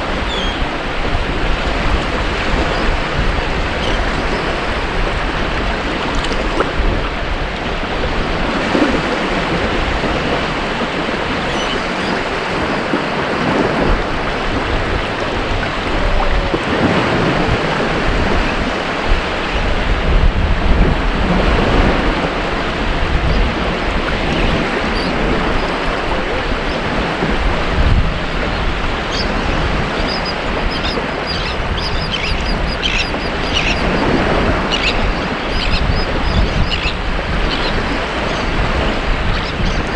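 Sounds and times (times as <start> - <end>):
waves breaking on beach: 0.0 - 39.9
short high bird calls: 30.7 - 33.9.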